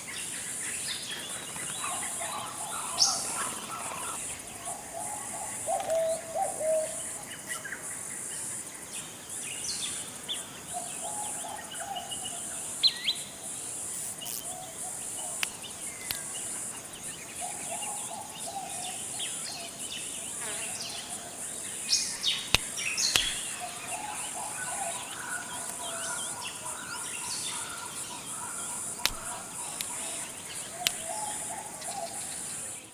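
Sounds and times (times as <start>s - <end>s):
high-pitched insect chorus: 0.0s - 32.9s
bird chirps: 21.9s - 32.6s.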